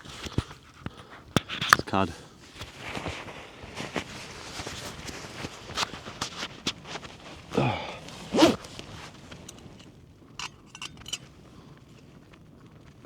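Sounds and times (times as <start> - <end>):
rustling and handling gear: 0.0 - 13.0.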